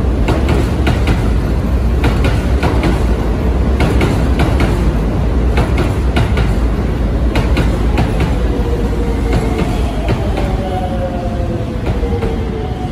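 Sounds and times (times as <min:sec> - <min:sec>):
train rumbling past: 0:00.0 - 0:12.9.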